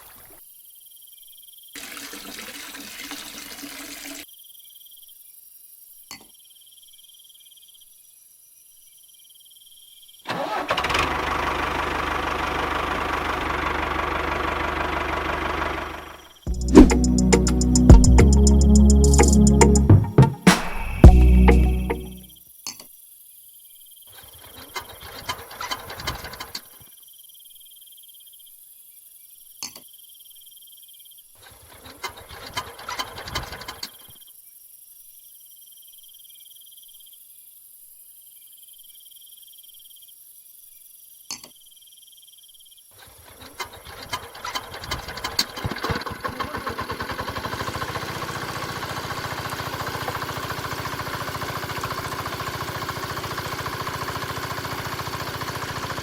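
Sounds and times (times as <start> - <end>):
diesel engine sputtering and running: 10.8 - 19.8, 45.6 - 56.0.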